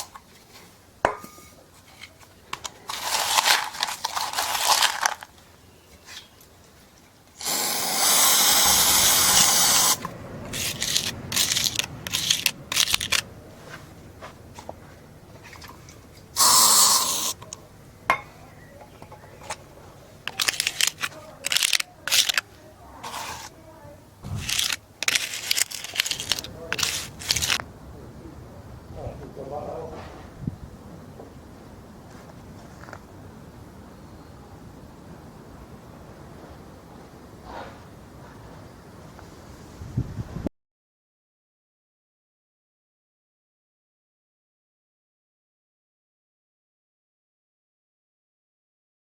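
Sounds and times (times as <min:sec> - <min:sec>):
hand tool scraping: 0:00.0 - 0:05.3, 0:05.9 - 0:23.6, 0:24.2 - 0:27.6.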